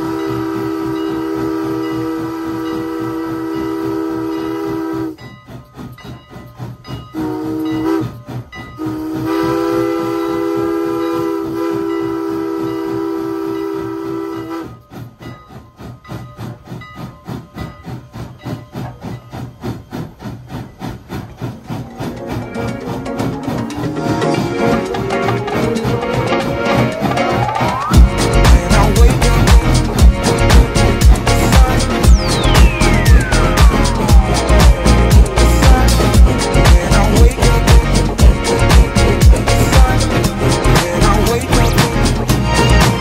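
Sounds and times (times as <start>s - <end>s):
steam locomotive chime whistle: 0.0s - 5.4s, 6.8s - 14.9s, 22.0s - 40.6s
steam engine chuffing: 0.0s - 43.0s.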